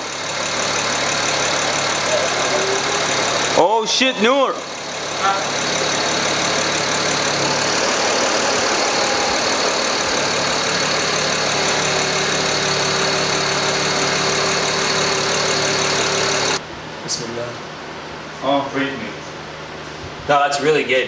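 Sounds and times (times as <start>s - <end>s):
car engine idling: 0.0s - 16.6s
steady high tone: 0.0s - 16.6s.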